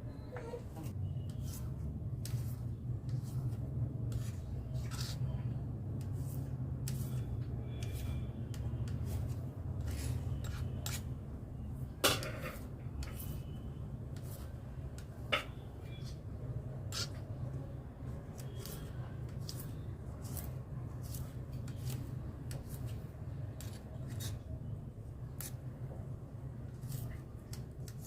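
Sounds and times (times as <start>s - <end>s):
knife slicing okra pods: 18.2s - 24.4s.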